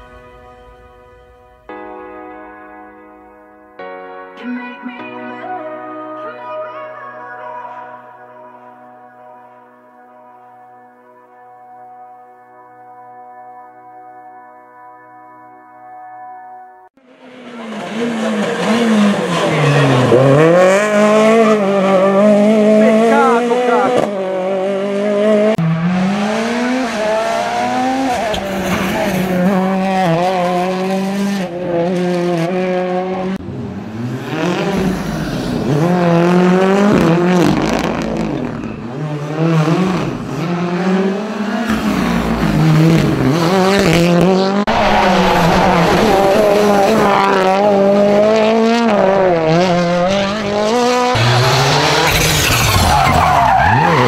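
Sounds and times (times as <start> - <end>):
rally car engines revving: 17.1 - 54.0.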